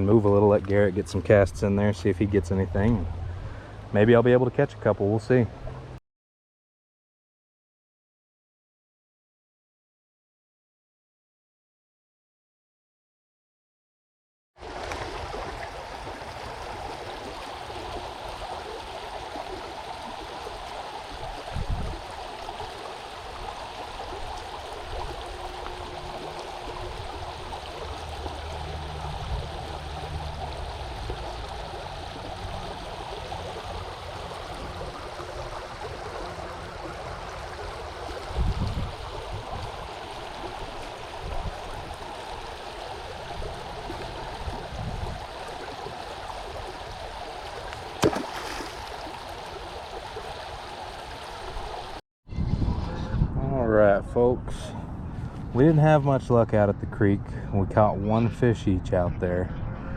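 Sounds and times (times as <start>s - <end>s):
creek water running: 14.6s - 52.0s.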